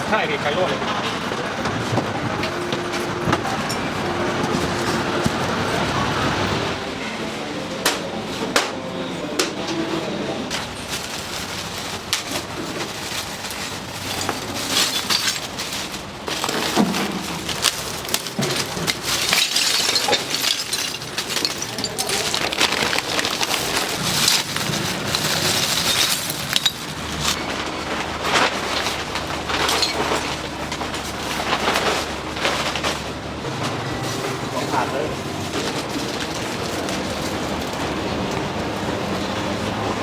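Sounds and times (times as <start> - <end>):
utensils clinking on cookware: 12.2 - 27.5, 28.7 - 33.0.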